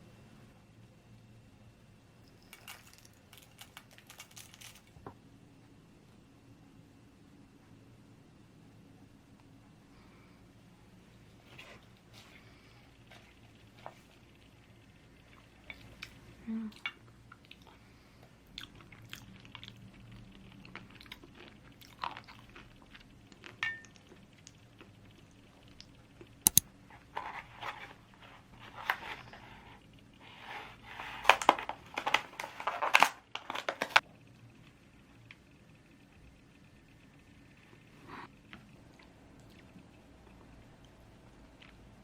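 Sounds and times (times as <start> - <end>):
eating clicks and bites: 25.8 - 26.6.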